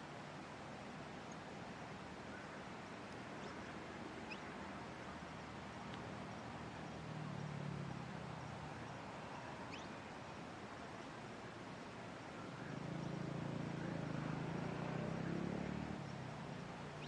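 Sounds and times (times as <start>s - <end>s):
outdoor background hiss: 0.0s - 17.0s
faint high bird chirps: 9.7s - 10.0s.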